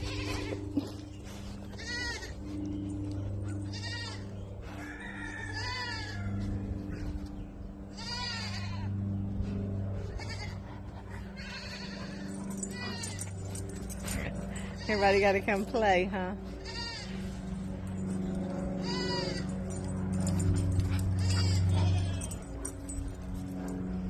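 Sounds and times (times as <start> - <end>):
goats bleating: 0.0 - 1.0, 1.8 - 2.3, 3.7 - 4.3, 5.6 - 6.3, 7.9 - 8.9, 10.2 - 10.6, 11.4 - 13.2, 16.6 - 17.2, 18.8 - 19.5, 21.2 - 22.4.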